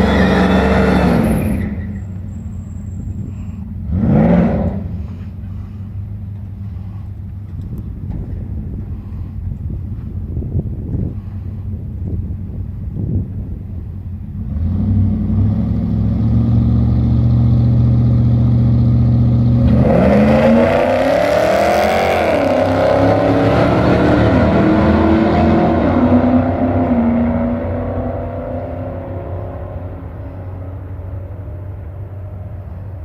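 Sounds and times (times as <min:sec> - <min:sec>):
steady engine hum: 0:00.0 - 0:33.0
car engine revving past: 0:19.3 - 0:30.6.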